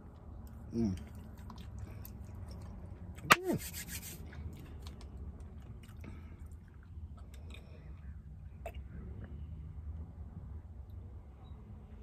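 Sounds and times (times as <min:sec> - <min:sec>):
chewing mouth noises: 0:00.0 - 0:03.3, 0:04.0 - 0:09.3.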